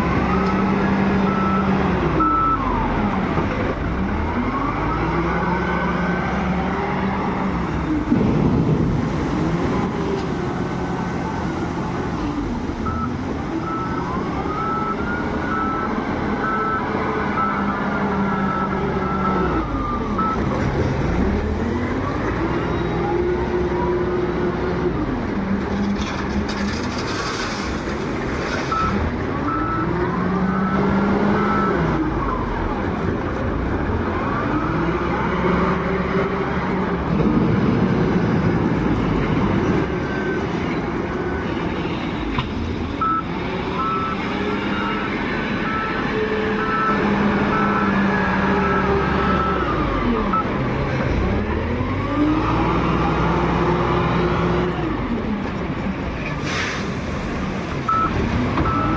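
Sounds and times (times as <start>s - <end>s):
wheel loader engine revving: 0.0s - 58.9s
reversing alarm beeps: 1.3s - 2.7s, 43.0s - 50.5s, 57.9s - 58.9s.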